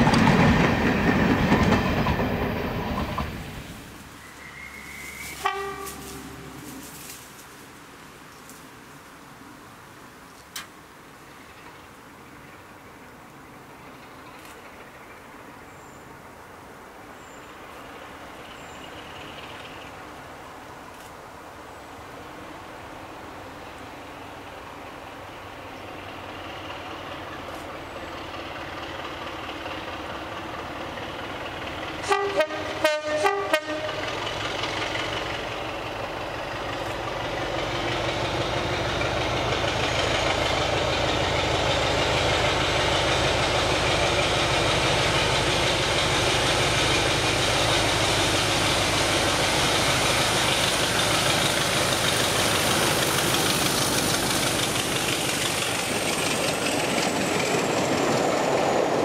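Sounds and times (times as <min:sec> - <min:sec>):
train engine and running gear: 0:00.0 - 0:08.7, 0:10.3 - 0:59.0
short train horn blasts: 0:04.3 - 0:06.8, 0:32.0 - 0:34.1.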